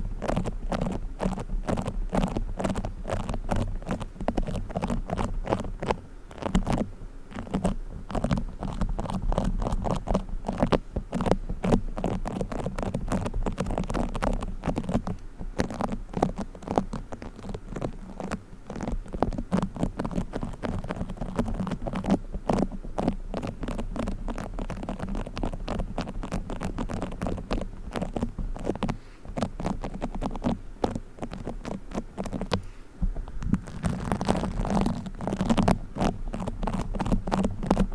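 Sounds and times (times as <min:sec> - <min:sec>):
fingers squishing bead foam: 0:00.0 - 0:32.7, 0:33.3 - 0:37.9.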